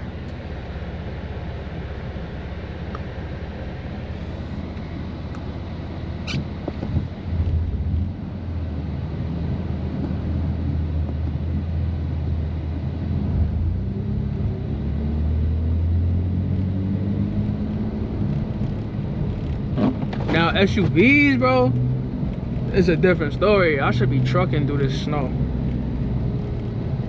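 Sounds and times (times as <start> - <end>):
car engine droning at low revs: 0.0 - 27.0.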